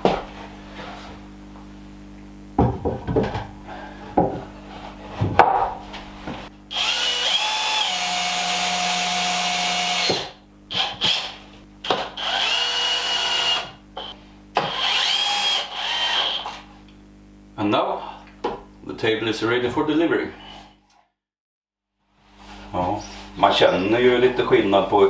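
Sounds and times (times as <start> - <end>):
power drill running: 6.7 - 16.6
knocks of wood and tools: 11.8 - 12.1.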